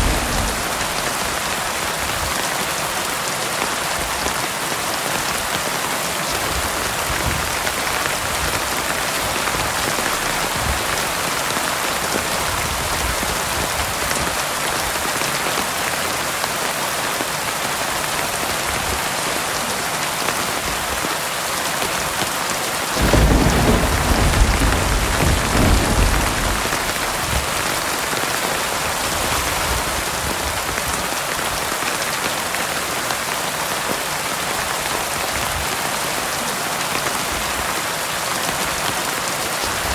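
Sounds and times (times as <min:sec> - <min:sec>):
thunder clap rumbling: 0:00.0 - 0:02.4, 0:07.3 - 0:13.7, 0:22.9 - 0:29.8
heavy rain: 0:00.0 - 0:39.9.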